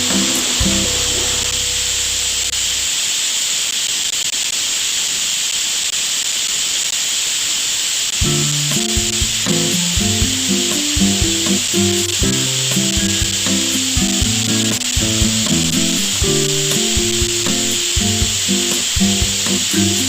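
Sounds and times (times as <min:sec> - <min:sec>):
background music: 0:00.0 - 0:02.8, 0:08.2 - 0:20.0
welding sizzling hiss: 0:00.0 - 0:20.0.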